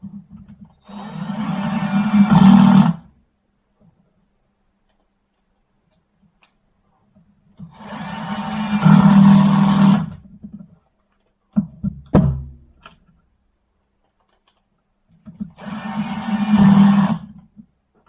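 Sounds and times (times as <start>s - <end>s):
impact wrench motor spinning: 0.9s - 3.0s, 7.8s - 10.2s, 15.6s - 17.3s.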